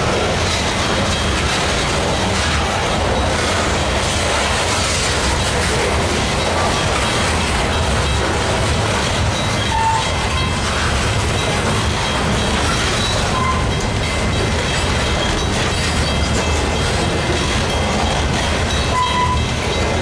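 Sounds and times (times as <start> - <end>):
freight train wheels rumbling on rail: 0.0 - 20.0
wheels squeaking: 9.4 - 16.8, 17.4 - 20.0.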